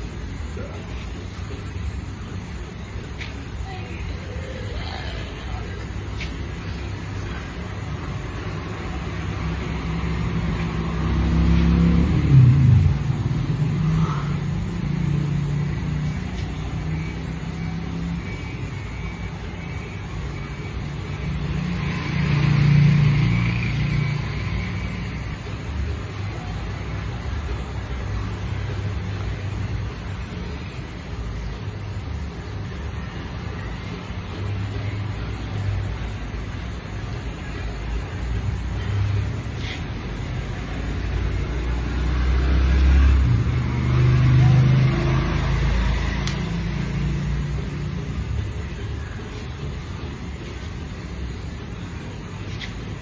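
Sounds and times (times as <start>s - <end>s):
road noise: 0.0s - 53.0s
vehicle engine rumble: 0.0s - 53.0s
vehicle engine passing by: 8.3s - 18.2s, 21.2s - 25.5s, 38.9s - 49.4s.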